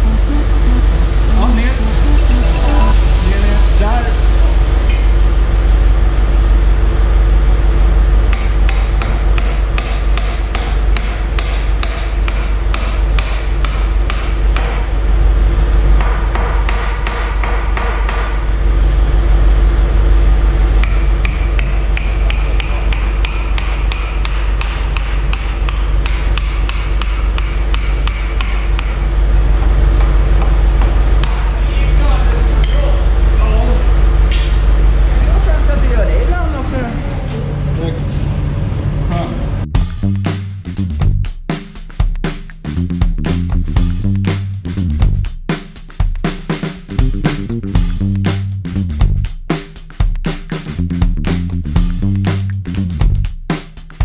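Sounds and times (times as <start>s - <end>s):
hammer striking steel: 8.3s - 14.9s, 20.8s - 29.0s.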